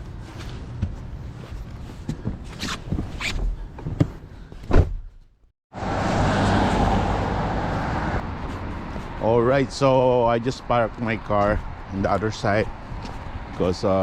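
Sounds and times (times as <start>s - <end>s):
traffic noise: 5.7s - 14.0s
footsteps: 6.7s - 14.0s.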